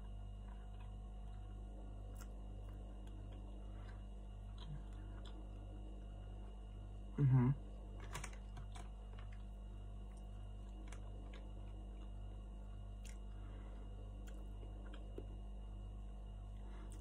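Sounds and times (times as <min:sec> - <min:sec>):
low hum: 0:00.0 - 0:17.0
faint chewing: 0:00.4 - 0:05.6, 0:13.0 - 0:15.4, 0:16.6 - 0:17.0.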